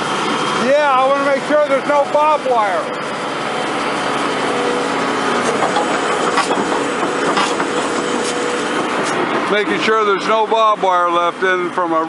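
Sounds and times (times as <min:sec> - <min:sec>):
heavy machinery running: 0:00.0 - 0:12.0
metallic clanks and knocks: 0:05.4 - 0:09.3.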